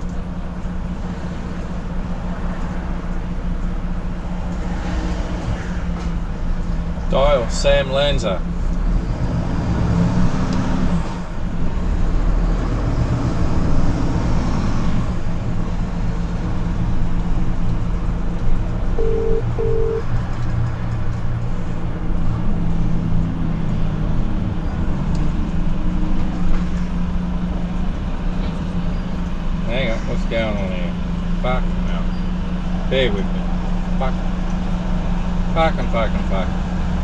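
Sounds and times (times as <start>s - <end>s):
diesel engine droning: 0.0s - 37.0s
road and tyre noise: 0.0s - 37.0s
short phone beeps: 19.0s - 20.0s.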